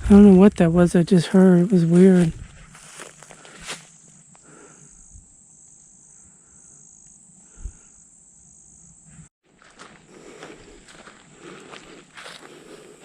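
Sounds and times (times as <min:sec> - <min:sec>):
pulsing higher insect trill: 0:00.1 - 0:09.3
insects trilling: 0:00.5 - 0:09.3.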